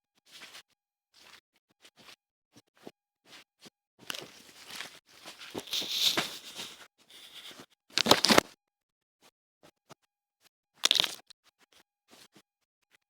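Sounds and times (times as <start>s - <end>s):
rustling and crinkling handling noise: 4.0s - 8.4s
sharp clicks and scrapes: 4.0s - 8.4s.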